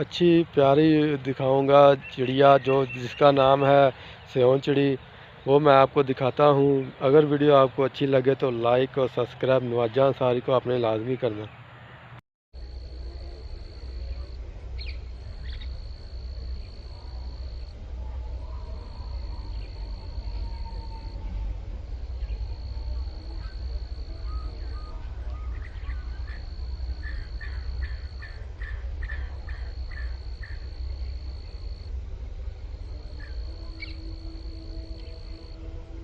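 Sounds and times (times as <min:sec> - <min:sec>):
insects droning: 0:00.0 - 0:11.4, 0:12.6 - 0:36.0
low rumble: 0:12.6 - 0:36.0
bird chirping: 0:14.8 - 0:16.9.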